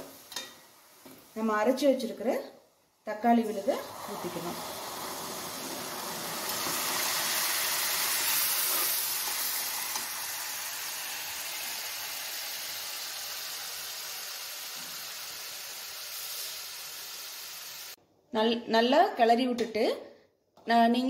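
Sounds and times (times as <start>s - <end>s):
paste sizzling in hot oil: 3.4s - 18.0s.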